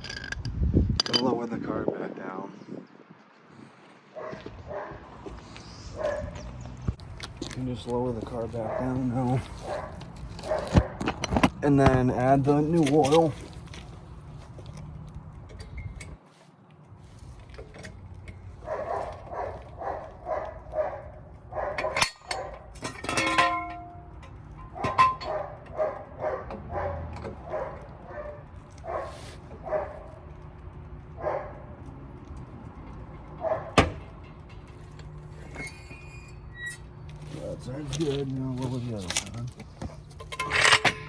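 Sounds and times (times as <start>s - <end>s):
dog barking: 4.1s - 5.0s, 6.0s - 6.4s, 8.6s - 11.0s, 18.6s - 22.6s, 24.8s - 30.2s, 31.2s - 31.7s, 33.4s - 33.8s.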